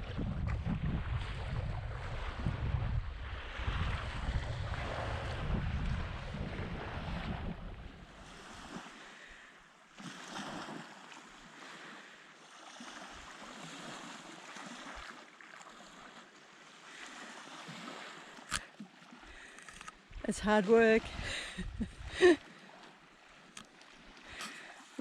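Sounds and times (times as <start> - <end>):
wind buffeting microphone: 0.0 - 8.6, 21.0 - 22.3.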